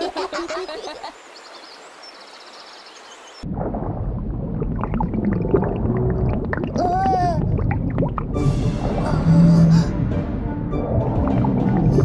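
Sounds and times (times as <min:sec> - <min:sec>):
underwater rumble with pops: 0:03.4 - 0:06.8.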